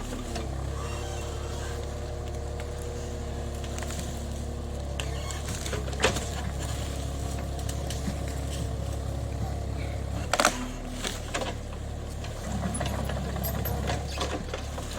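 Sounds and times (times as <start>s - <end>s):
excavator diesel engine running: 0.0s - 14.9s.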